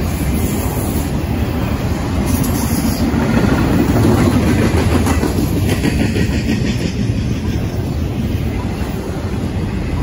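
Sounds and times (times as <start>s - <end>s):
freight train wheels rumbling: 0.0s - 10.0s.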